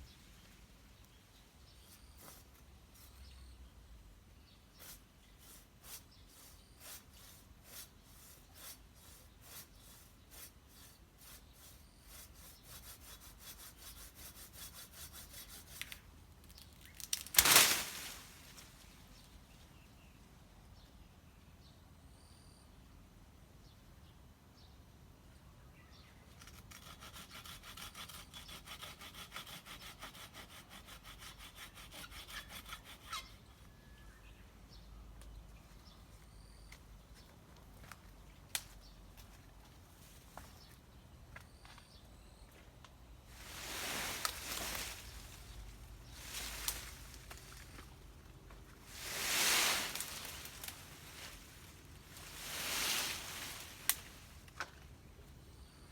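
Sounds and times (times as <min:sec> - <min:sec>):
hand saw cutting wood: 0:05.4 - 0:16.0, 0:26.4 - 0:33.5.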